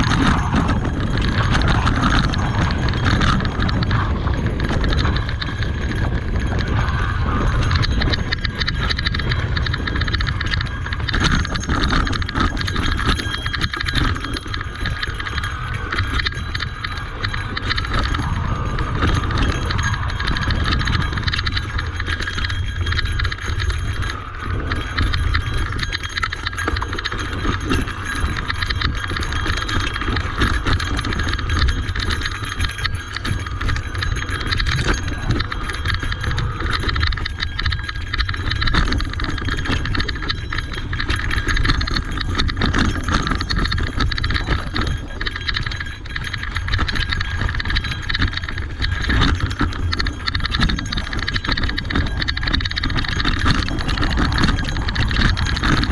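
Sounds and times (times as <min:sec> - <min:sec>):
bike rattling over rocks: 0:00.0 - 0:55.9
bike tyres rolling on dirt: 0:00.0 - 0:55.9
wind on microphone: 0:00.0 - 0:55.9.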